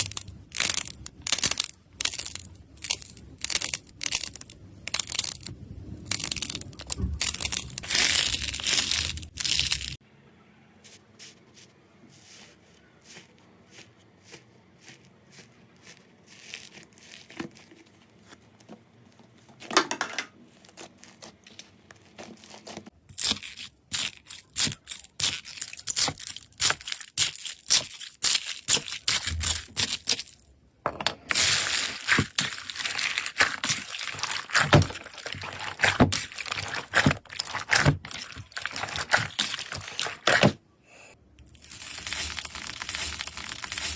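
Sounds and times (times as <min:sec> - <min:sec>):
slime crackling and popping: 0:00.0 - 0:10.0, 0:22.2 - 0:30.4, 0:31.3 - 0:40.6, 0:41.4 - 0:43.9.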